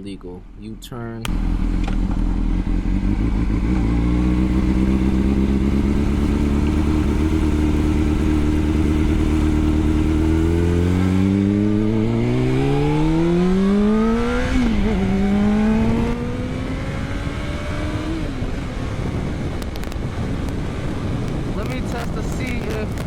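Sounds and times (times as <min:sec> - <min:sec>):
motorcycle engine accelerating: 0:01.2 - 0:23.0.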